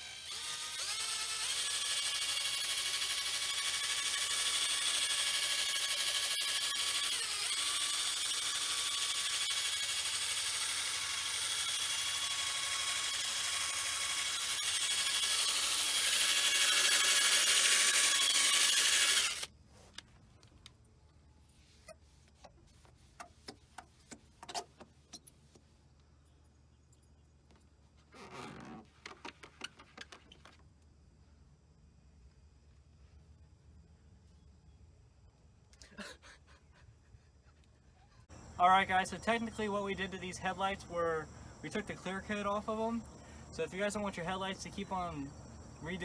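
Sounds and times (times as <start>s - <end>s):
electric drill whirring: 0.0s - 19.5s
faint clicks and handling sounds: 19.8s - 26.2s.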